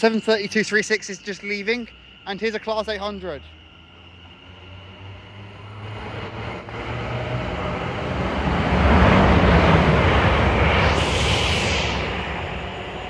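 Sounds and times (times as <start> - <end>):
high hiss: 0.0 - 5.6, 9.2 - 13.0
locomotive droning: 0.0 - 13.0
train wheel and rail noise: 0.0 - 13.0.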